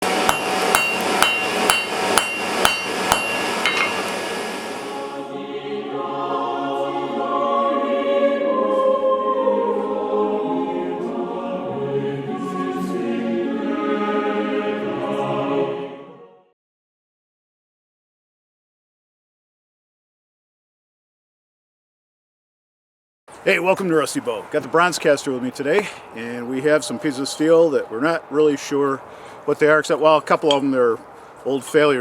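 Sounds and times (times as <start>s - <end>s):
hammer striking anvil: 0.0s - 4.1s
choir singing: 4.8s - 16.6s, 26.5s - 27.8s.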